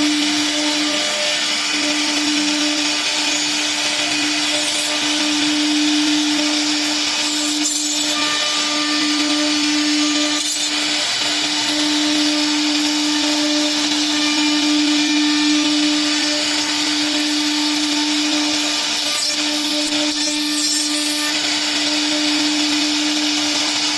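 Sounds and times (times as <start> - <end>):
router spindle whine: 0.0 - 23.9
wood cutting hiss: 0.0 - 23.9.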